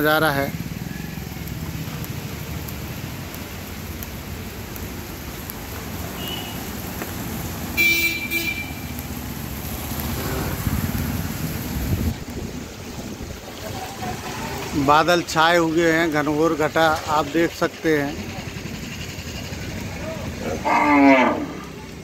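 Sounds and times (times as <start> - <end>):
heavy rain on wet road: 0.0 - 20.4
traffic moving: 0.0 - 22.0
vehicle horn honking: 7.8 - 8.9.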